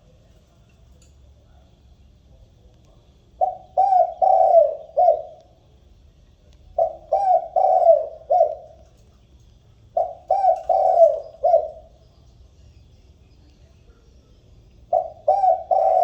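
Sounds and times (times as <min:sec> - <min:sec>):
dove cooing: 0:03.4 - 0:05.6, 0:06.7 - 0:09.1, 0:09.9 - 0:12.0, 0:14.8 - 0:16.0.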